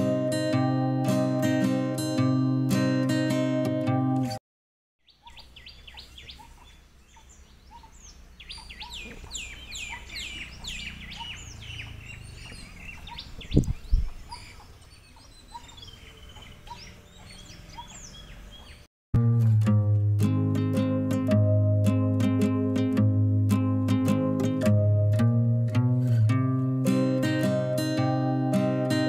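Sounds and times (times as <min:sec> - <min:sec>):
birds whistling and chirping: 0:05.0 - 0:18.8.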